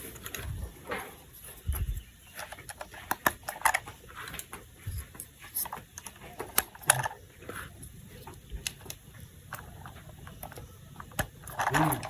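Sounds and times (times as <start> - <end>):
plastic toy parts clicking: 5.6 - 7.2, 8.6 - 12.0.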